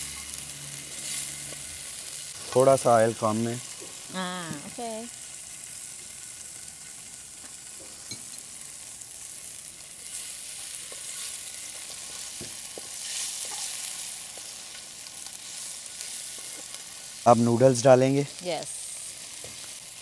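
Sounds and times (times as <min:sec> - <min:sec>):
food sizzling in a wok: 0:00.0 - 0:20.0
spatula tapping and scraping: 0:12.0 - 0:14.6.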